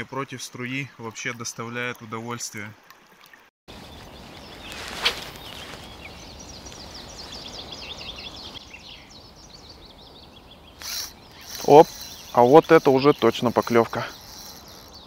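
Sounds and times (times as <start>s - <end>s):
steady outdoor hiss: 0.0s - 15.0s
small bird singing: 3.8s - 15.0s.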